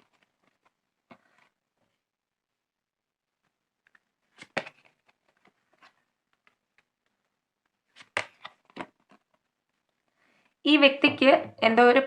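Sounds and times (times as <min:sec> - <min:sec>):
cards rustling and clicking: 0:00.0 - 0:02.0, 0:03.4 - 0:10.6.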